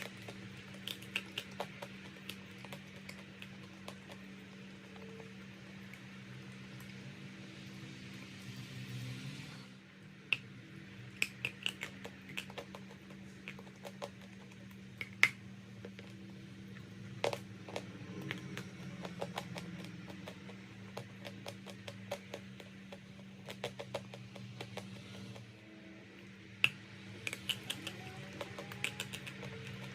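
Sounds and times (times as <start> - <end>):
crunching chalk clicks: 0.0 - 5.3, 26.6 - 29.9
steady low hum: 0.0 - 29.9.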